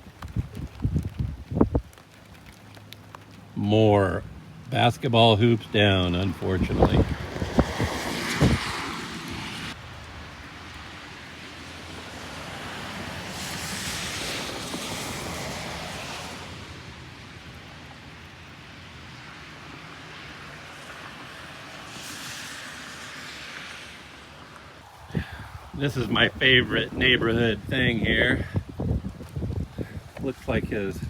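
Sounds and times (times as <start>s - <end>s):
wind blowing across microphone: 0.0s - 2.4s, 4.2s - 10.4s, 24.8s - 31.0s.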